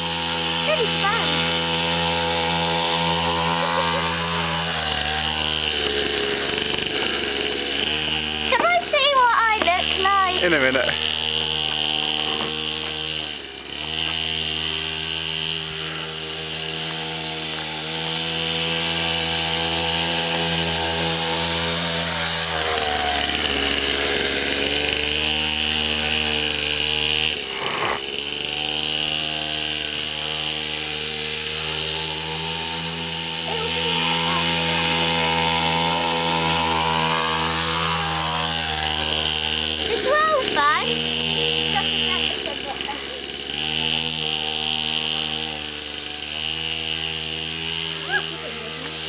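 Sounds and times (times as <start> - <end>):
small motorbike engine running: 0.0 - 49.0.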